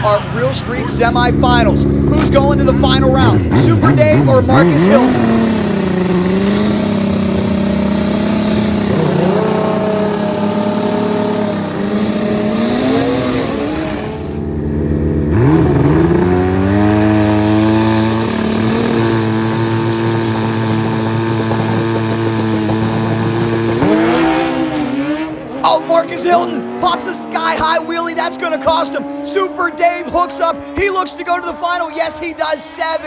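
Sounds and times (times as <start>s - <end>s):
motorcycle engines revving hard: 0.0s - 33.0s.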